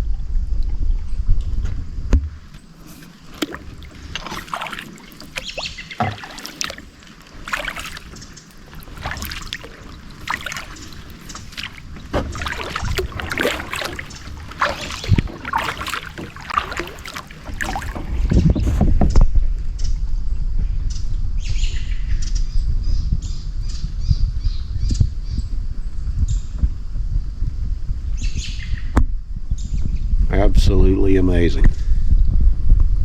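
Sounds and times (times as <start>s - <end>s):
paddle strokes in water: 0.1s - 20.1s
water splashes and drips: 2.5s - 19.0s.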